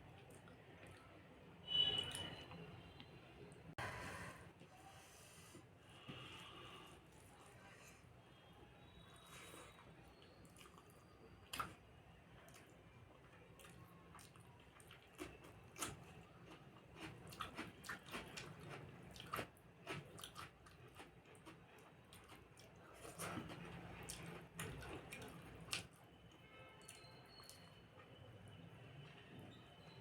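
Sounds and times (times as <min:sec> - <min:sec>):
person chewing food: 0:09.4 - 0:11.8, 0:12.5 - 0:26.0.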